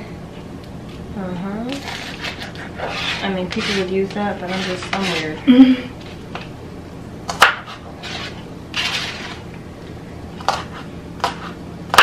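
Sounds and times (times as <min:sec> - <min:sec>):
scraping and rustling: 0:01.7 - 0:05.4, 0:07.6 - 0:09.5.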